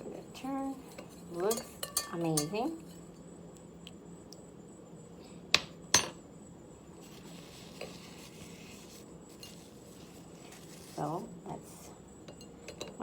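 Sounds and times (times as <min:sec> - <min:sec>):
spoon clinking against cup: 0:01.5 - 0:02.6.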